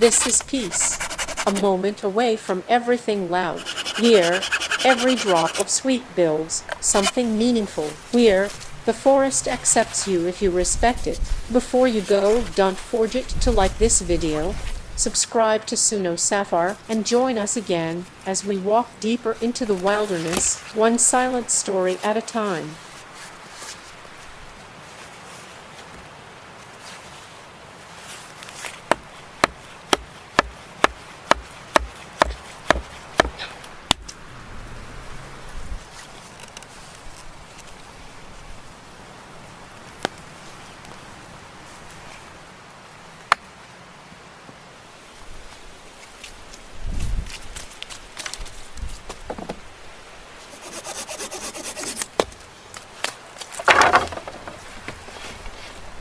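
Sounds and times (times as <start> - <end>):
scraping strokes on wood: 0.0 - 1.8, 3.5 - 5.8, 6.8 - 7.5, 50.4 - 52.3
sharp knock on wood: 28.9 - 33.4
blade chopping wood: 28.9 - 34.1.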